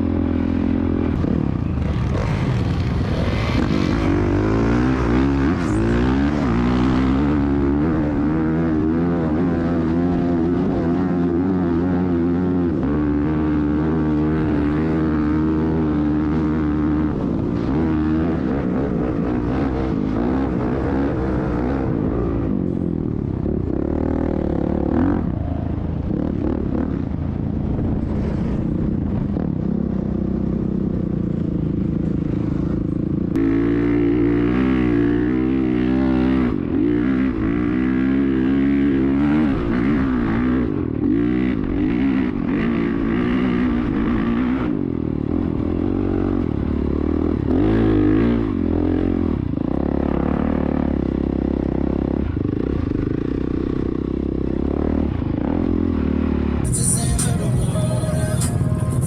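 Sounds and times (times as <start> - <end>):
motorcycle engine revving: 0.0 - 59.0
stronger engine sound: 52.2 - 59.0.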